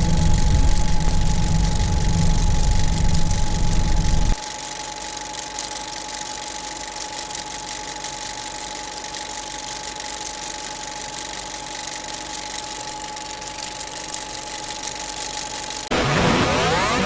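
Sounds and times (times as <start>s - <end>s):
engine rush with high whine: 0.0s - 4.4s.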